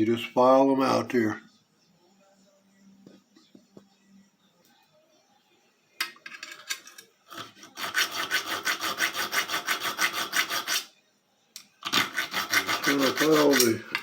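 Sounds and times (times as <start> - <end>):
hand file rasping on steel: 7.3 - 10.9, 11.8 - 14.0.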